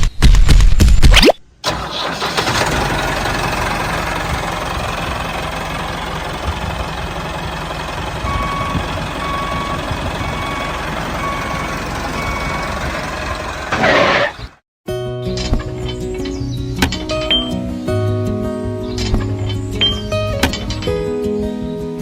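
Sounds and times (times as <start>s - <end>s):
vehicle engine running: 1.7s - 14.6s
reversing alarm beeping: 8.2s - 12.9s.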